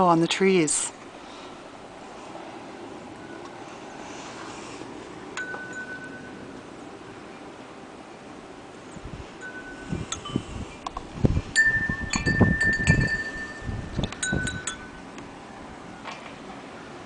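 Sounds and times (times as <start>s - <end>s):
wind chime tinkling: 5.4s - 6.6s, 9.4s - 10.9s, 11.6s - 15.1s.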